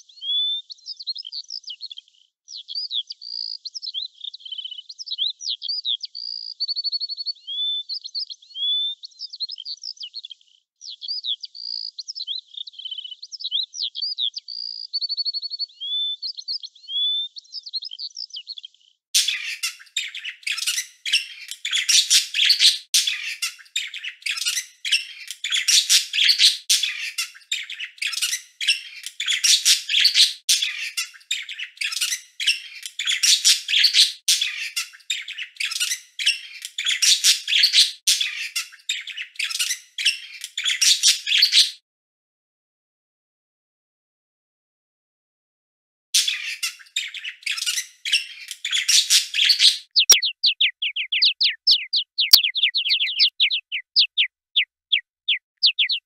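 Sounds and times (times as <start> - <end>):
birdsong with chirps and whistles: 0.0 - 41.8, 46.2 - 56.0
dense fast bird chirping: 46.2 - 56.0.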